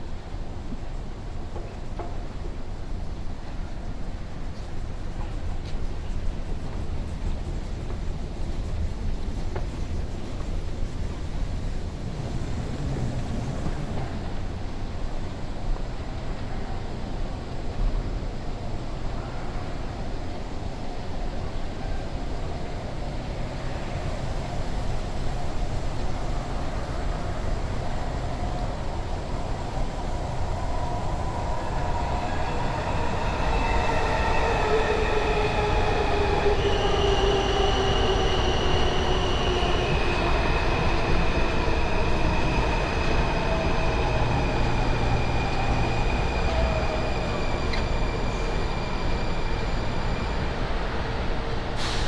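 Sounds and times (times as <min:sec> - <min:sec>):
train rumble: 0:00.0 - 0:52.0
high wheel squeals: 0:26.2 - 0:51.2.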